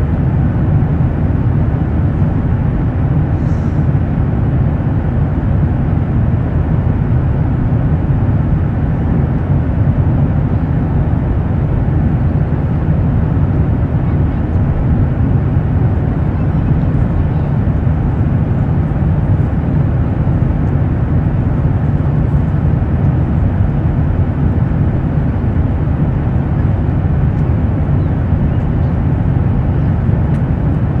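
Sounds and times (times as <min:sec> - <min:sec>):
airplane engine rumble: 0:00.0 - 0:31.0.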